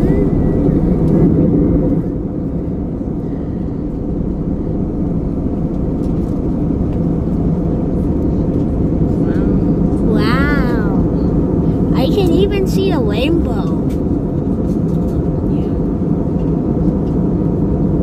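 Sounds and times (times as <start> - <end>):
aircraft engine and cabin drone: 0.0 - 18.0.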